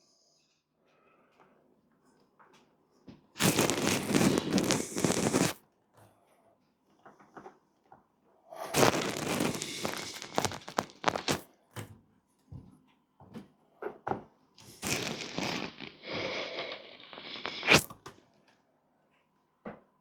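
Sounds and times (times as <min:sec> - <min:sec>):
footsteps: 0:03.4 - 0:05.6, 0:08.8 - 0:11.4, 0:14.6 - 0:17.9.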